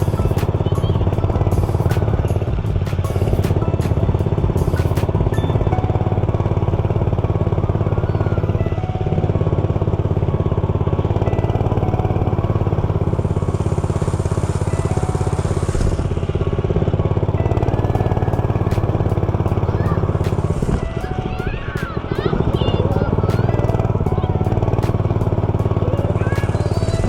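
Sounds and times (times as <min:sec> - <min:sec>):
dirt bike engine running: 0:00.0 - 0:27.0
hiss: 0:13.4 - 0:14.7.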